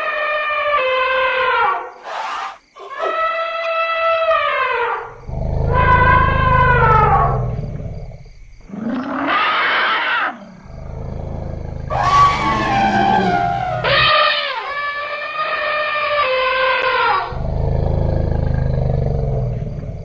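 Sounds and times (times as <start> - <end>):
elephant deep rumble: 11.9 - 14.8
elephant trumpeting: 11.9 - 14.8.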